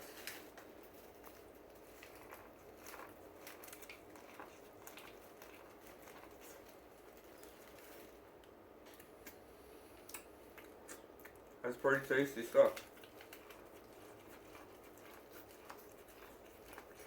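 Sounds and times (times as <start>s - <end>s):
faint chewing with crunchy clicks: 0.0s - 17.0s.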